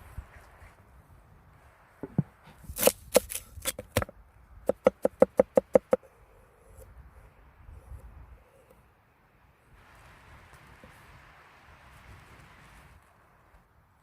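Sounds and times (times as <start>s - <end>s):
knife chopping on cutting board: 4.7s - 6.0s.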